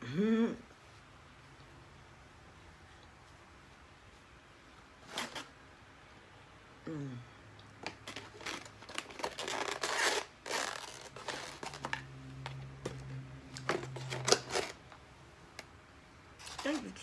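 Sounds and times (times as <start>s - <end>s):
food packaging crinkling: 5.0s - 5.5s, 7.8s - 15.7s, 16.4s - 17.0s.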